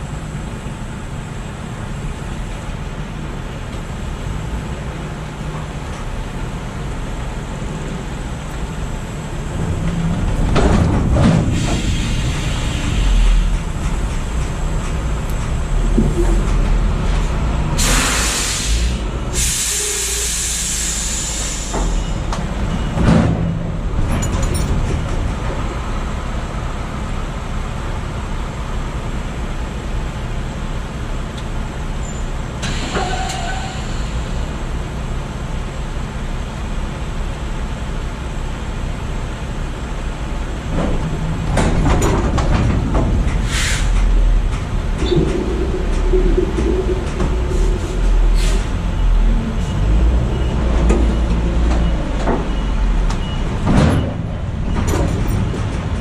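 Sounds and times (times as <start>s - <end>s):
diesel truck engine running: 0.0s - 32.6s, 33.8s - 56.0s
air brake hisses: 11.5s - 13.4s, 17.8s - 22.1s, 32.6s - 34.5s, 43.4s - 44.0s.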